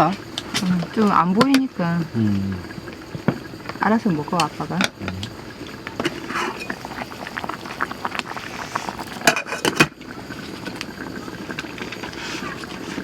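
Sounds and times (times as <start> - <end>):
meat sizzling on a grill: 6.2 - 11.2
fire crackling and snapping: 6.3 - 9.7.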